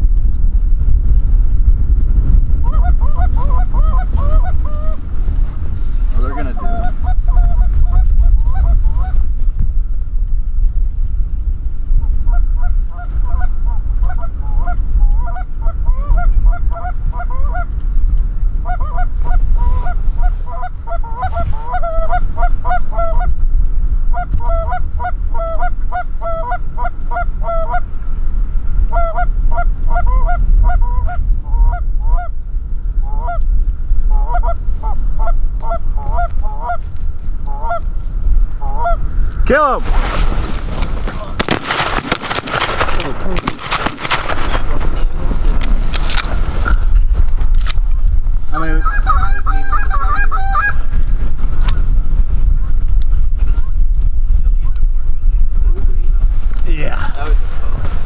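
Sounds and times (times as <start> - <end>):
wind rumble on microphone: 0.0 - 58.0
geese honking: 6.2 - 9.1, 40.0 - 45.3, 48.6 - 51.0.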